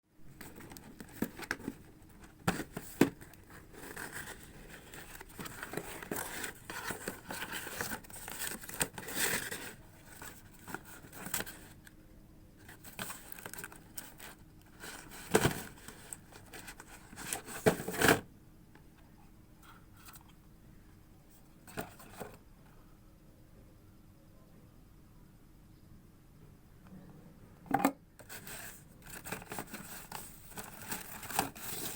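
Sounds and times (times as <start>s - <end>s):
packaging rustling and tearing: 0.4s - 11.8s, 12.6s - 18.2s, 28.2s - 31.9s.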